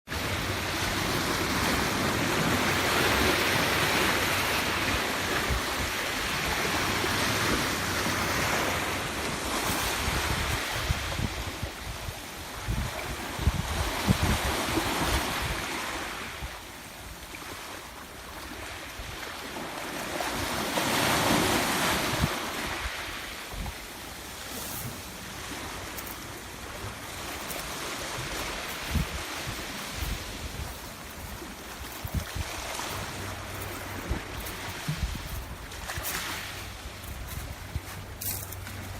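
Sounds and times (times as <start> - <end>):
rough sea waves breaking: 0.1 - 38.9
wind buffeting microphone: 0.4 - 16.6, 24.8 - 38.9.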